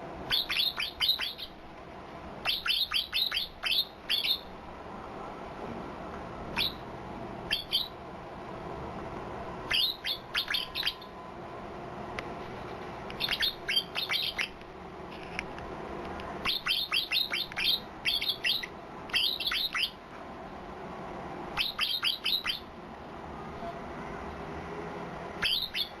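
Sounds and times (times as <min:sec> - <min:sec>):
bird high quick chirps: 0:00.3 - 0:01.6, 0:02.4 - 0:04.5, 0:06.6 - 0:06.8, 0:07.5 - 0:08.0, 0:09.7 - 0:11.1, 0:13.2 - 0:14.6, 0:16.4 - 0:20.0, 0:21.6 - 0:22.7, 0:25.4 - 0:26.0.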